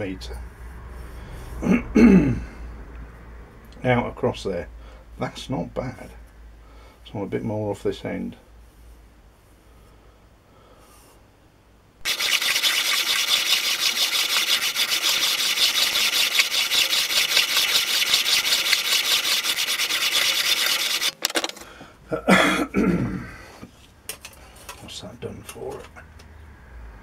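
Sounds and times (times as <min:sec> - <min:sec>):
saw blade scraping on abrasive: 0:12.0 - 0:21.2.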